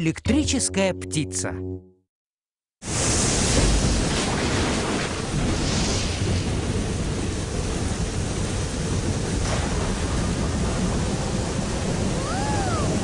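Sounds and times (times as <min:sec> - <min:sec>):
ocean waves rushing: 0:02.8 - 0:13.0.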